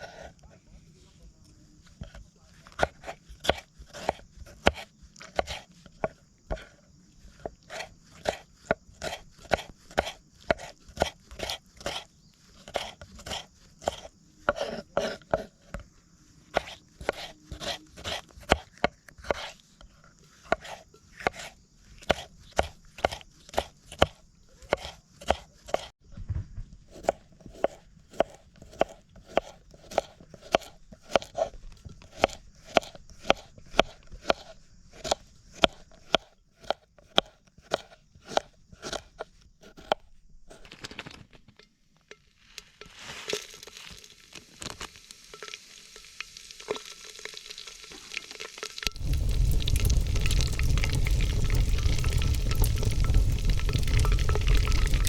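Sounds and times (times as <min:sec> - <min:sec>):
knife chopping on cutting board: 0:02.8 - 0:06.7, 0:07.7 - 0:12.0, 0:22.1 - 0:25.9, 0:26.9 - 0:31.5, 0:32.1 - 0:40.0
food sizzling: 0:43.2 - 0:55.0.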